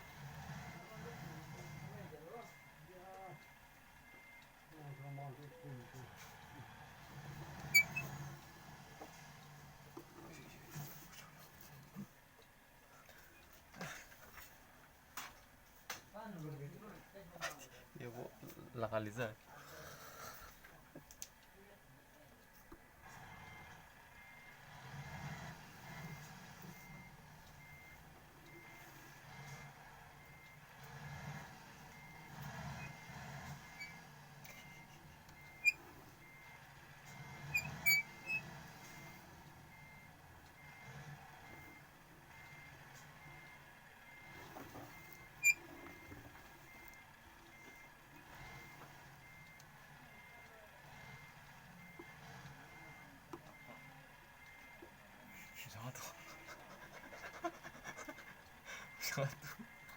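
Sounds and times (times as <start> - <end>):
reverse warning beeper: 46.7 - 57.3, 58.0 - 59.9.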